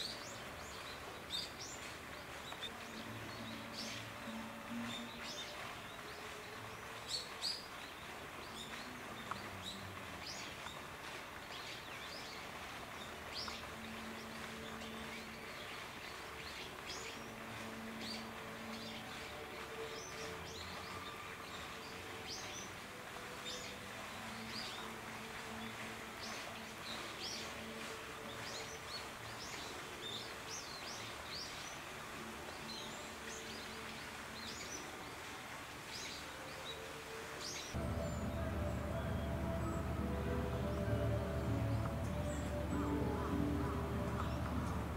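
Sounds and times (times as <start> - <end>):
small birds chirping: 0.0 - 35.2
faint low hum: 37.8 - 44.9.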